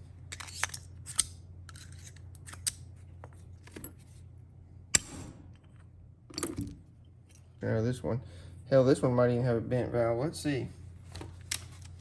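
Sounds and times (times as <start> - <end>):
metal tools clicking and scraping: 0.3 - 2.8.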